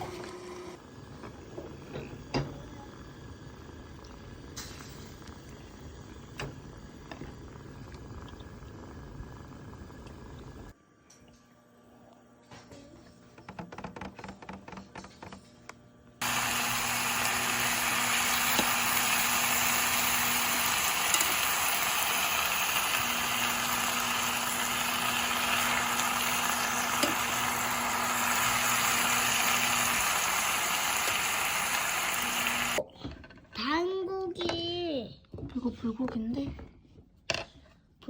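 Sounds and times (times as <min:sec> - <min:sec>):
meat sizzling in a frying pan: 0:16.2 - 0:32.8.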